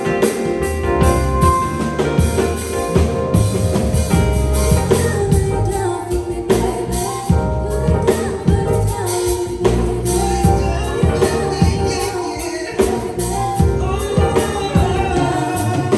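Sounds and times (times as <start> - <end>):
drum beat: 0.0 - 15.9
live band playing: 0.0 - 15.9
person singing: 4.8 - 15.9.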